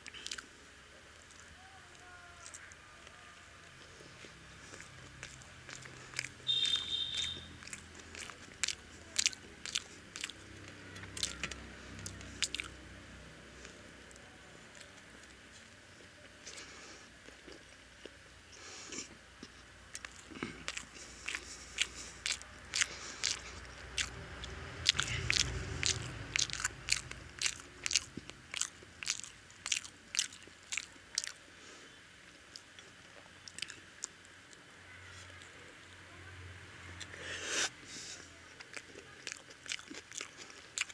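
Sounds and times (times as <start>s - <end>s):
person biting and chewing: 0.0s - 0.5s, 3.8s - 12.8s, 18.9s - 31.4s, 38.6s - 40.9s.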